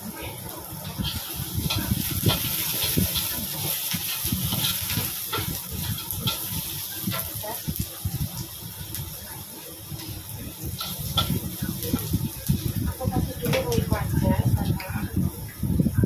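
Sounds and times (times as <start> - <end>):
egg sizzling in hot oil: 0.0 - 16.0
metal spatula scraping a wok: 0.8 - 7.5, 10.0 - 12.2.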